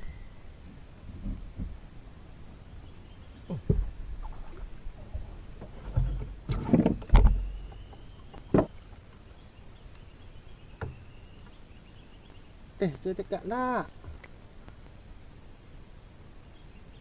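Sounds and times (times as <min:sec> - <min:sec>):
high insect drone: 0:00.0 - 0:17.0
gear knocking in a boat: 0:05.0 - 0:09.2.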